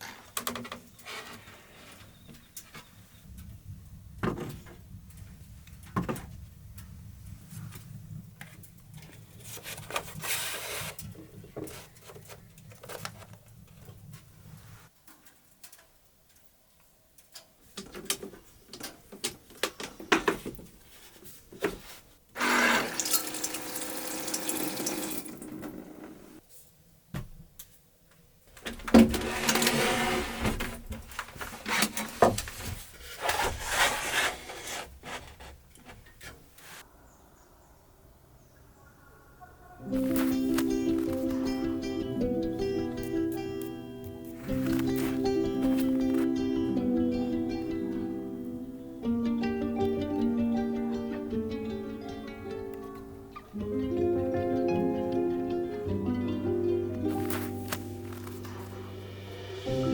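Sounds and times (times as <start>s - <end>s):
water running: 22.4s - 26.4s.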